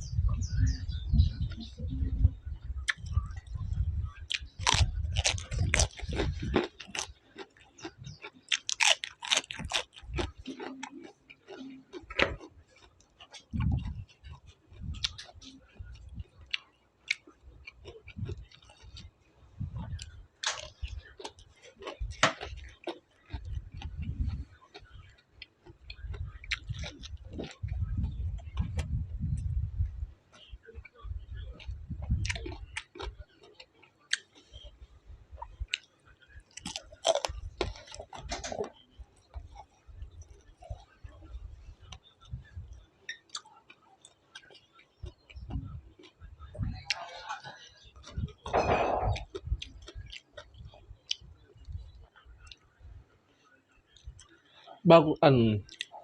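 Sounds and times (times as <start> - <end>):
person chewing food: 2.7 - 29.6, 30.3 - 53.0, 53.7 - 54.8, 55.6 - 56.0
crisp crunches: 4.4 - 7.9
wet mouth clicks: 55.7 - 56.0.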